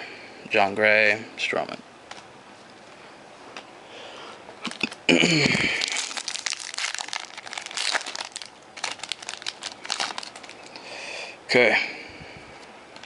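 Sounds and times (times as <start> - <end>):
foil wrapper crinkling: 4.6 - 5.0, 5.6 - 10.8.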